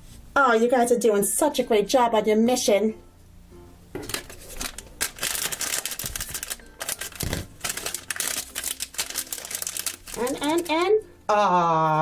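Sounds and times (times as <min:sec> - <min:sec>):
plastic foil bag crinkling: 0:04.0 - 0:10.9.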